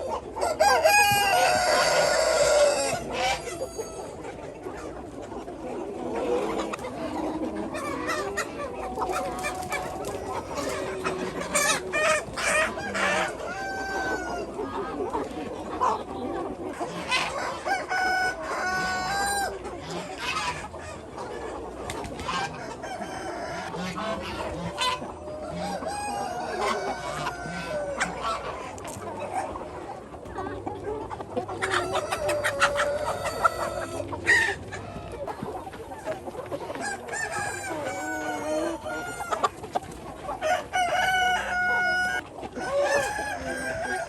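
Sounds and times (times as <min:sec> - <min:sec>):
chickens clucking and calling: 0:00.0 - 0:44.0.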